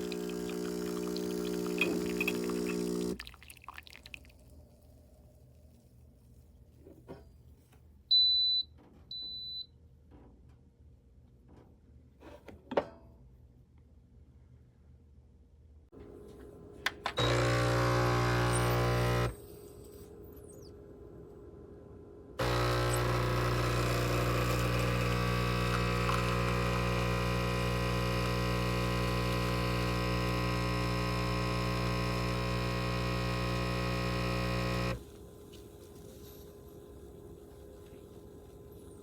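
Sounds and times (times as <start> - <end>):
espresso machine pump buzzing: 0.0 - 3.2, 17.1 - 19.4, 22.4 - 35.0.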